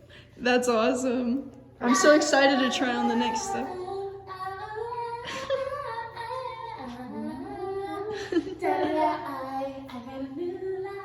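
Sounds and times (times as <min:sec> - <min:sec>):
person singing a melody: 0:02.5 - 0:11.0.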